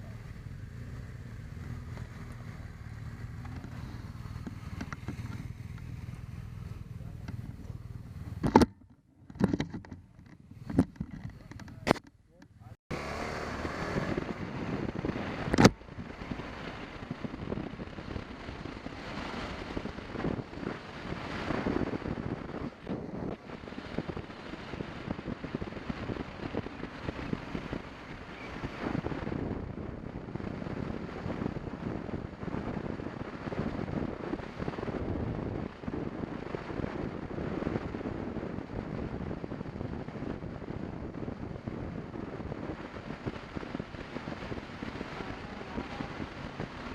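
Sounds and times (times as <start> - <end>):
motorcycle engine and road noise: 0.0 - 46.9
wind rushing over microphone: 0.0 - 46.9.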